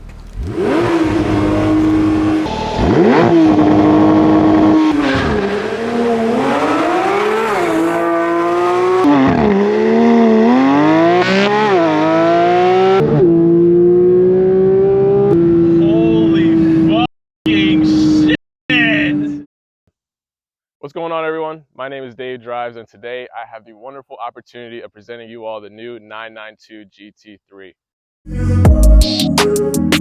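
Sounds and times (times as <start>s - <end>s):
car engine revving hard: 0.3s - 16.9s.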